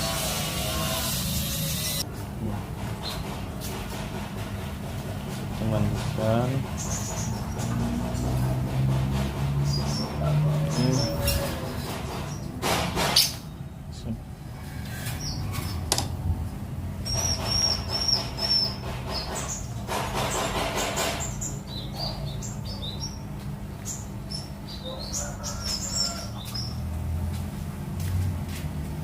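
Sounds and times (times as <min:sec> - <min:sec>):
bird chirping: 0:09.5 - 0:12.5, 0:17.0 - 0:19.8, 0:21.1 - 0:26.8.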